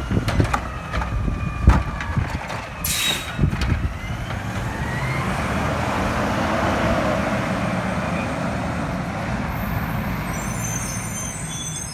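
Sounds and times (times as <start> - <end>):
garbage truck engine rumbling: 0.0 - 11.9
high faint squeals: 9.6 - 11.9.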